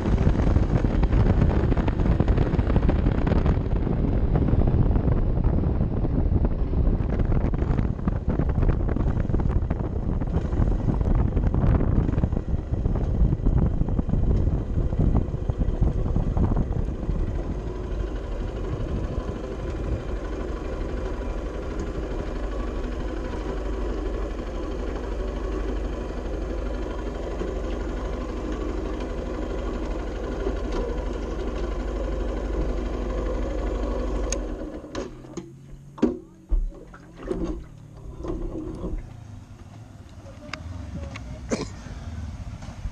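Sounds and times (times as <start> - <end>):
wind on microphone: 0.0 - 24.3
motorcycle engine running: 0.0 - 36.8, 37.6 - 42.9.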